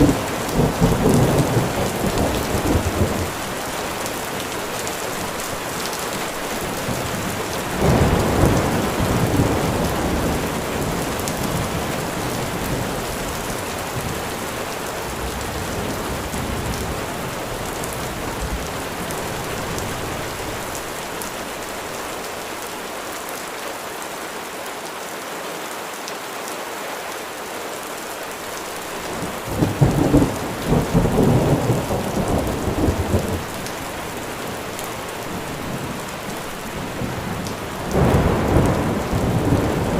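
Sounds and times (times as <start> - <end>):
thunder rolling: 0.0 - 3.4, 6.9 - 13.4, 29.1 - 33.6, 36.8 - 39.9
rain pattering: 0.0 - 39.9.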